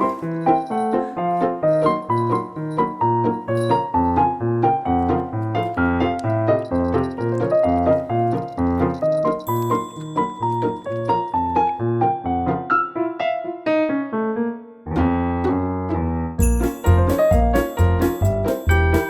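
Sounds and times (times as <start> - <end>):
piano melody run: 0.0 - 19.0
repeating piano bass line: 14.9 - 19.0.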